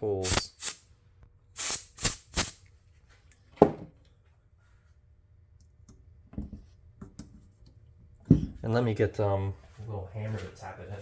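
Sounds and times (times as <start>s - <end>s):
puffs of blown air: 0.0s - 0.8s, 1.6s - 2.6s.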